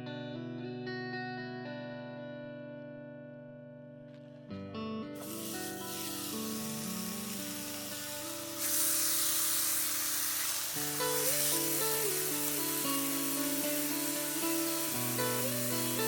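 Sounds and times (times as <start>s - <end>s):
background guitar music: 0.0s - 16.0s
food sizzling on a pan: 5.2s - 16.0s.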